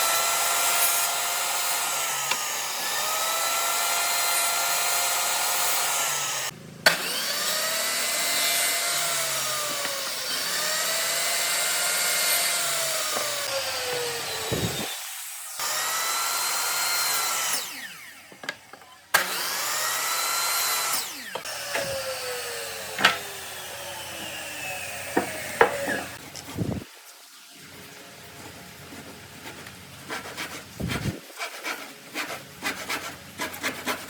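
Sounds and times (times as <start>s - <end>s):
power tool motor whining: 0.0s - 26.8s.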